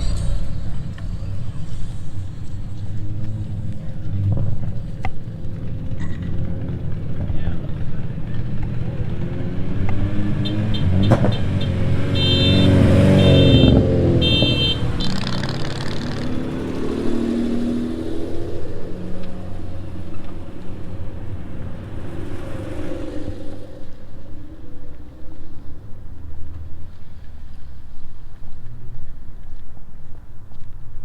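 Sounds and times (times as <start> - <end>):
cars driving past: 0.0 - 29.2.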